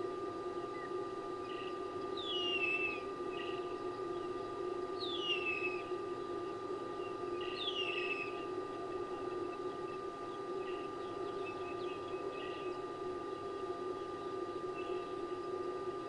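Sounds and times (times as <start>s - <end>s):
steady low hum: 0.0s - 16.0s
bird whistles: 2.2s - 3.6s, 5.0s - 5.9s, 7.5s - 8.4s.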